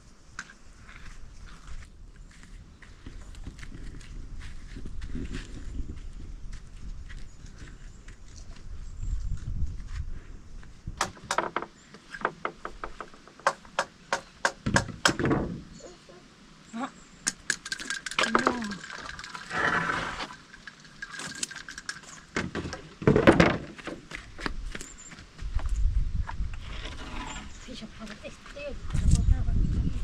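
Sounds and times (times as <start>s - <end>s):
sharp clicks and knocks: 11.0s - 15.5s.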